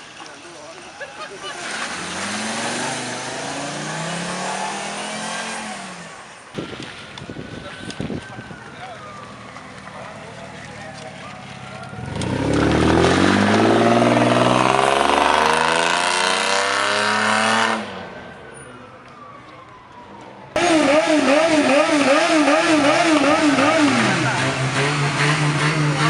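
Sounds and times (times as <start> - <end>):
car engine revving: 1.5 - 6.6, 10.5 - 18.0, 20.6 - 26.0.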